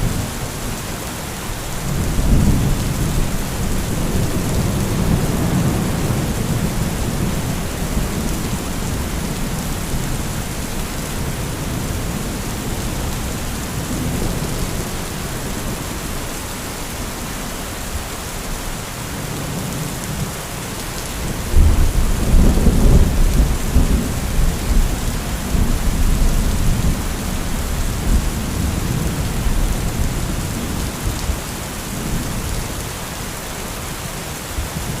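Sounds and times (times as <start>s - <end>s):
heavy rain falling: 0.0s - 35.0s
thunder rumbling: 1.8s - 16.1s, 21.2s - 32.5s.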